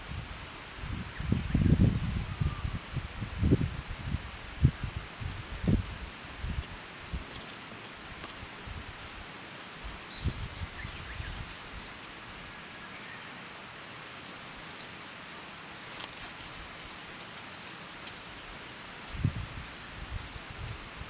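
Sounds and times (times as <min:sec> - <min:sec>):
steady rustling hiss: 0:02.7 - 0:21.0.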